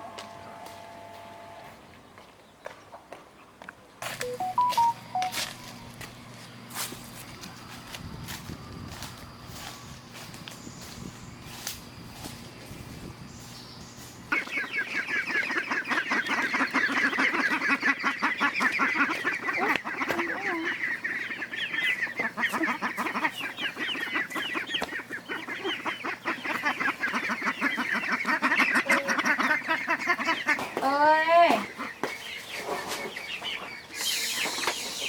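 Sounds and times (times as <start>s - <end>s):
poultry calling: 13.4s - 35.0s.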